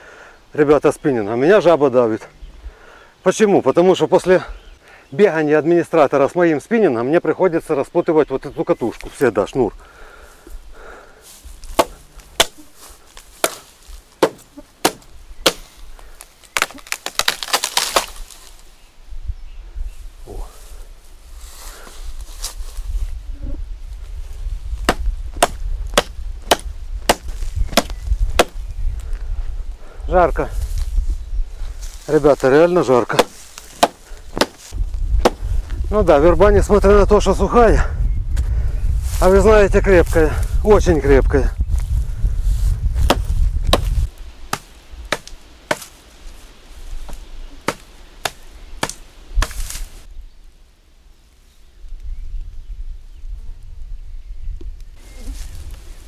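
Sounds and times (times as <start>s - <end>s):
axe chopping wood: 11.7s - 15.8s, 16.6s - 18.2s, 24.8s - 28.6s, 33.1s - 35.4s, 43.0s - 46.0s, 47.1s - 49.8s.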